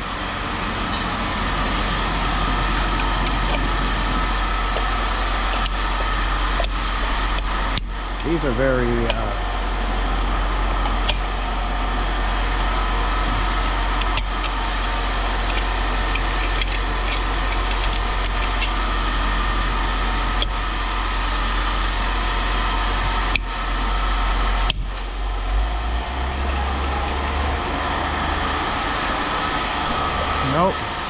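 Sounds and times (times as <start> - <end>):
motor humming: 0.0 - 31.0.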